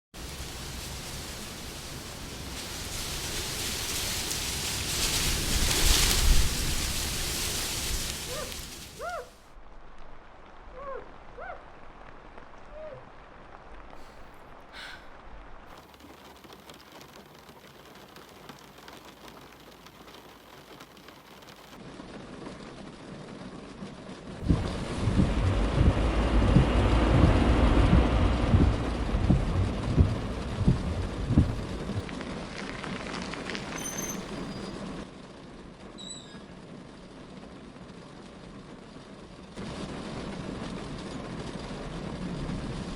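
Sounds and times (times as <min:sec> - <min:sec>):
steady rain falling: 0:00.2 - 0:42.9
low thunder rumbles: 0:21.8 - 0:35.8, 0:36.6 - 0:42.9.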